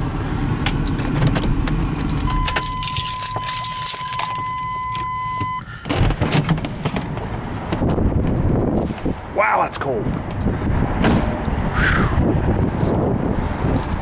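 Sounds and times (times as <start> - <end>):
car engine rumble: 0.0 - 14.0
keys jangling: 1.9 - 5.0, 12.6 - 13.1
electronic warning tone: 2.3 - 5.6
thump: 11.0 - 11.4.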